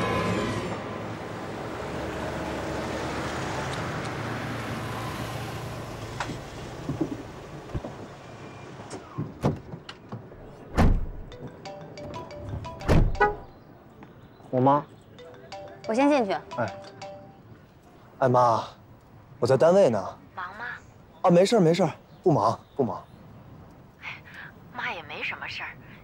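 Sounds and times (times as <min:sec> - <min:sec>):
rumbling vehicle noise: 0:00.0 - 0:14.6
heavy thump: 0:10.7 - 0:11.3.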